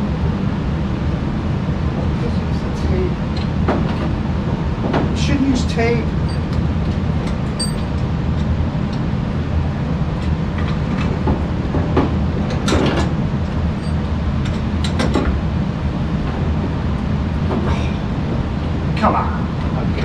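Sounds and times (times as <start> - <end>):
low mechanical rumble: 0.0 - 20.0
tools clanking on metal pipes: 7.5 - 8.0, 13.8 - 15.2.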